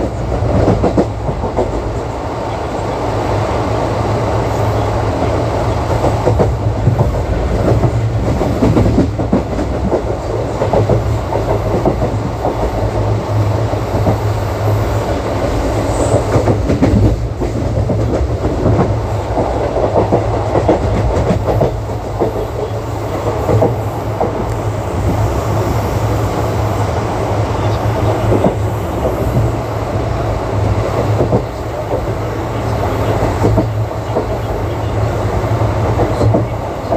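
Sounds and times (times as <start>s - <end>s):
train wheels rumbling on track: 0.0s - 36.9s.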